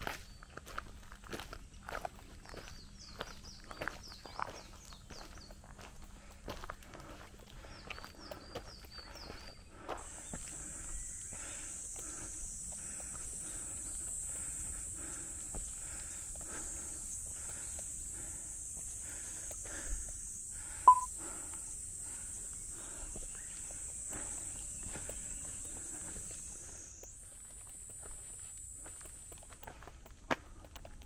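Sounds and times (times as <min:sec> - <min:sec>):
footsteps on dirt trail: 0:00.0 - 0:21.3, 0:22.0 - 0:31.0
high-pitched insect drone: 0:10.0 - 0:29.8.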